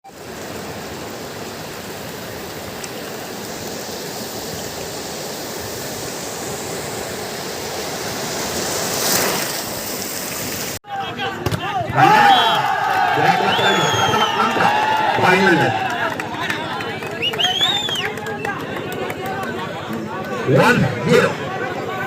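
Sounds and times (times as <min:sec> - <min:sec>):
steady rushing noise: 0:00.0 - 0:10.8.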